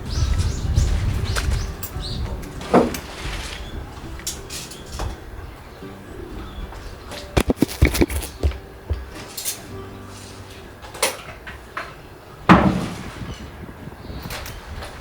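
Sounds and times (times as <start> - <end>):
hard objects knocking: 7.4 - 9.1.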